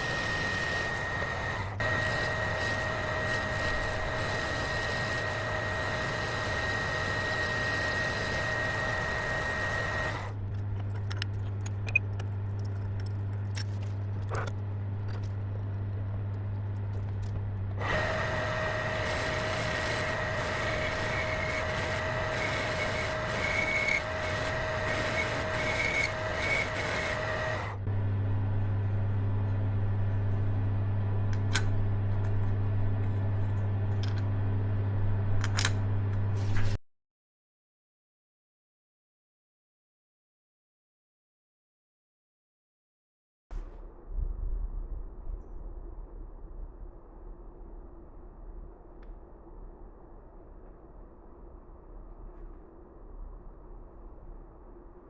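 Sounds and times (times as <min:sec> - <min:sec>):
whining machine: 0:00.0 - 0:11.3, 0:11.9 - 0:32.3
low motor hum: 0:00.0 - 0:36.8.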